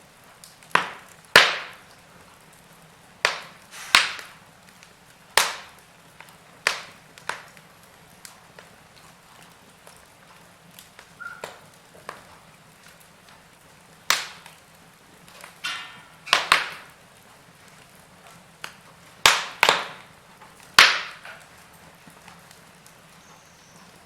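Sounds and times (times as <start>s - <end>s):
faint steady hiss: 0.0s - 24.0s
logs crackling in fireplace: 0.0s - 24.0s
sharp loud pops: 0.7s - 1.8s, 3.3s - 4.4s, 14.1s - 14.5s, 15.4s - 16.9s, 19.2s - 20.1s, 20.8s - 21.4s.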